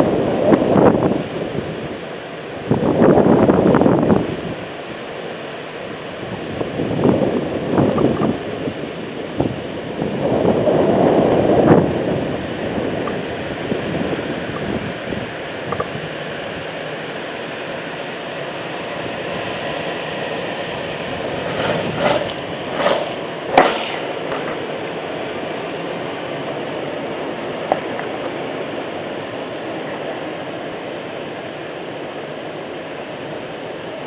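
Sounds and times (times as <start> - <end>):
rain falling: 10.2 - 34.0
sharp knocks and splashes: 21.5 - 24.6.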